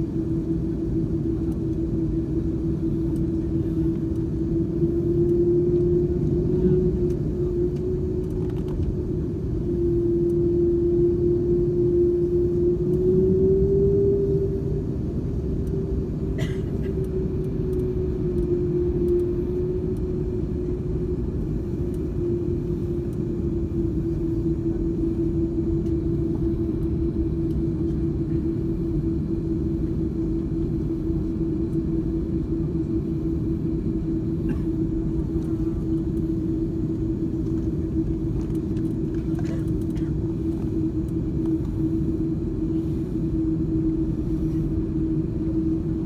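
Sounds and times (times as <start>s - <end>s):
airplane cabin rumble: 0.0s - 46.0s.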